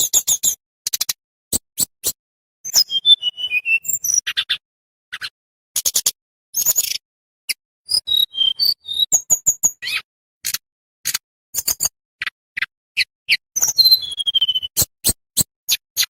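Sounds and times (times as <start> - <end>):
bird high whistles: 1.8 - 4.6, 7.9 - 10.1, 13.0 - 16.0.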